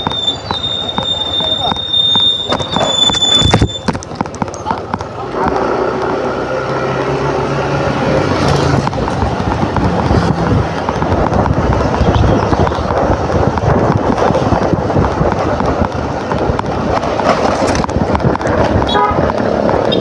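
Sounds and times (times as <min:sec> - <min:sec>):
scooter engine hum: 0:00.0 - 0:20.0
wind noise on microphone: 0:00.0 - 0:20.0.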